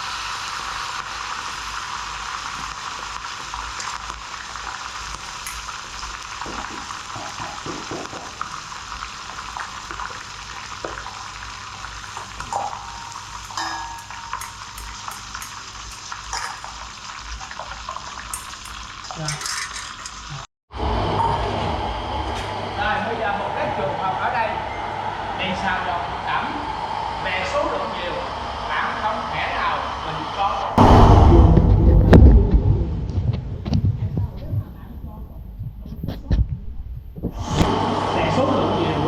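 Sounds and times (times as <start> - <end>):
food sizzling in hot oil: 0.0 - 20.5
utensil stirring and scraping: 18.3 - 20.4.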